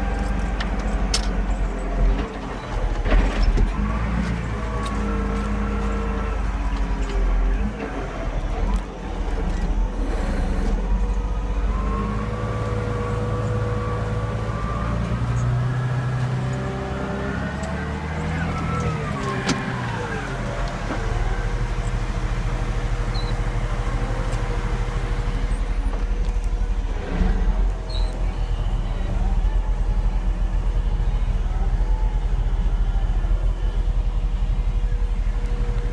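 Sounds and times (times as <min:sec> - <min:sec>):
diesel engine running under load: 0:00.0 - 0:35.9.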